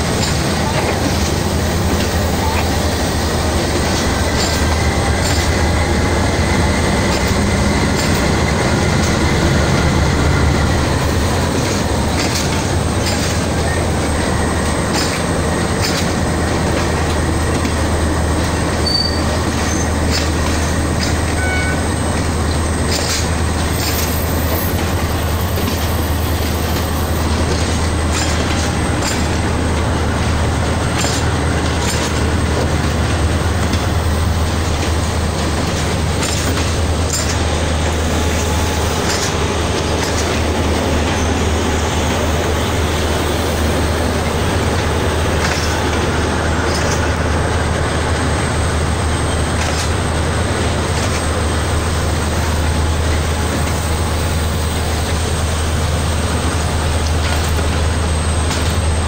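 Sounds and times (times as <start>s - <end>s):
wheels clacking over rail joints: 0.0s - 54.1s, 54.7s - 59.0s
train wheels rumbling on rails: 0.0s - 59.0s
thin wheel squeal: 18.8s - 19.9s.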